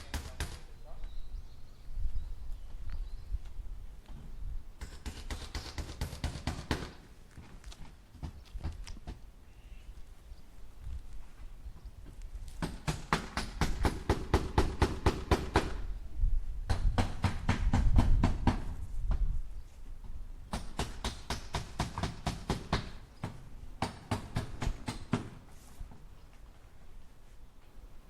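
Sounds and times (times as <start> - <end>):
hammer driving nails into wood: 4.8 - 7.0, 12.6 - 15.8, 20.5 - 25.4.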